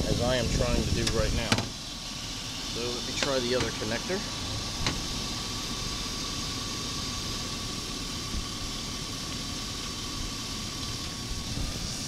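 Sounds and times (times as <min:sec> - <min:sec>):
car engine idling: 0:00.0 - 0:12.0
steady engine whine: 0:00.0 - 0:12.0.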